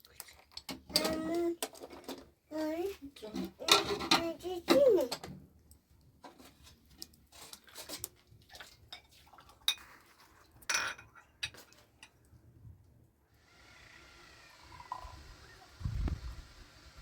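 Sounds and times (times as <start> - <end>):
dishes and utensils clinking: 3.6 - 5.2, 8.9 - 12.2.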